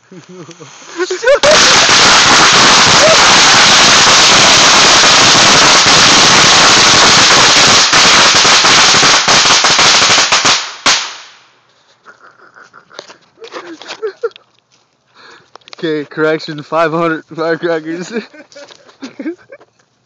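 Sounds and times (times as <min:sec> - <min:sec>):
firecrackers crackling: 0:00.0 - 0:14.4
firecracker bang: 0:00.9 - 0:11.5.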